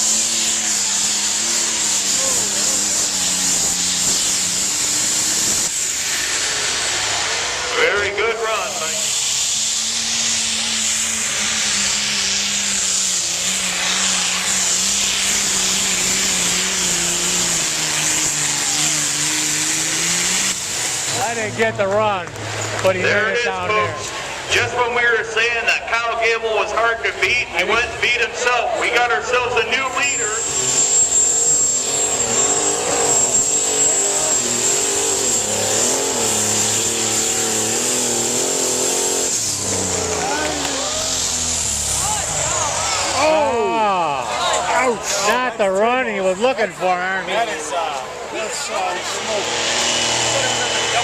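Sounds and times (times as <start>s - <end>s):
high-pitched whine: 0.0s - 21.6s, 22.5s - 44.8s
loud steady hiss: 0.0s - 21.8s, 29.2s - 44.2s
tractor engine under load: 0.0s - 51.0s.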